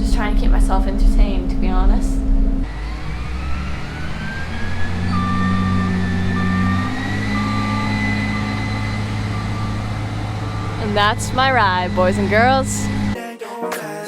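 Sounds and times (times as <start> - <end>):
vehicle engine running with whine: 0.0 - 13.2
electronic warning beep: 2.2 - 13.2.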